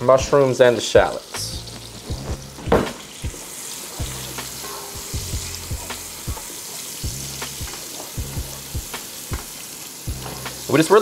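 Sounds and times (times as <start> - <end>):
vegetables sizzling in a frying pan: 0.5 - 11.0.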